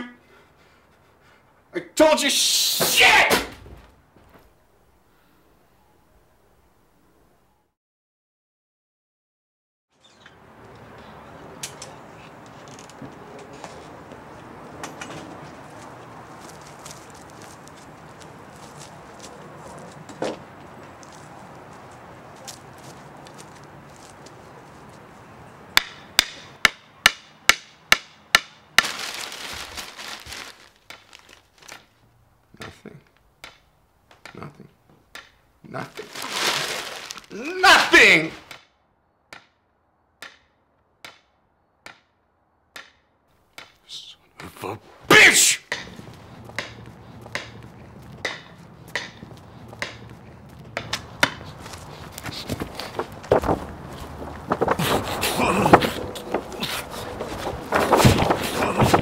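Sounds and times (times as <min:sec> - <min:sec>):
footsteps on a hard surface: 0:15.1 - 0:25.1, 0:45.9 - 0:59.0
newspaper pages rustling: 0:15.4 - 0:20.1, 0:28.8 - 0:32.0, 0:35.9 - 0:38.3, 0:51.0 - 0:59.0
hammer blows: 0:43.6 - 0:59.0.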